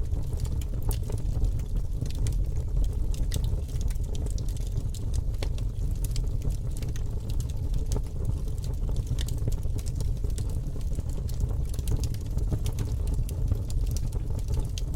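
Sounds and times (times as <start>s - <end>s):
campfire crackling: 0.0s - 14.9s.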